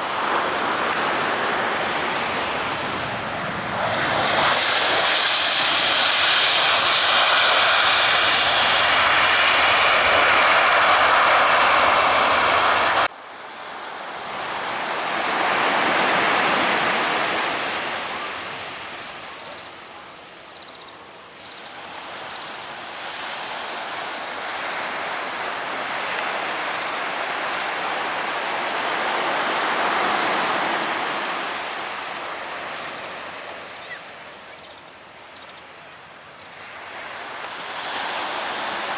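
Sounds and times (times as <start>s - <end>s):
aircraft engines passing close: 0.0s - 13.1s
surf rushing on a beach: 0.0s - 20.1s, 21.7s - 38.9s.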